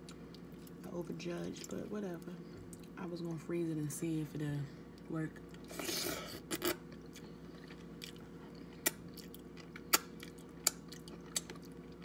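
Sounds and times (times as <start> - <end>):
person chewing crab legs: 5.5 - 12.0.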